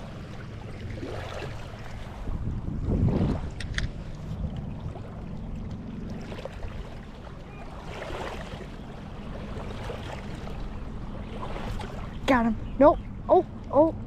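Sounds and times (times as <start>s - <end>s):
moving water: 0.0s - 14.0s
wind on microphone: 1.0s - 7.0s.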